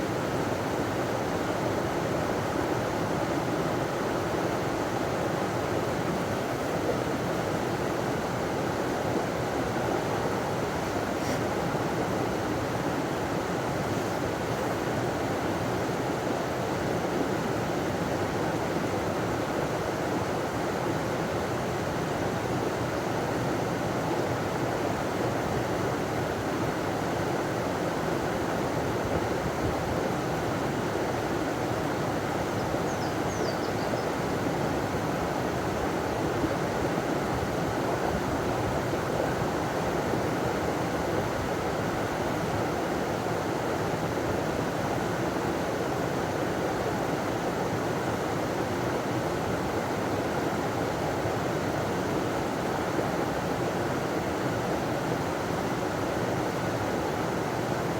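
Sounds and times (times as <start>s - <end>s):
faint high chirp: 32.6s - 34.1s.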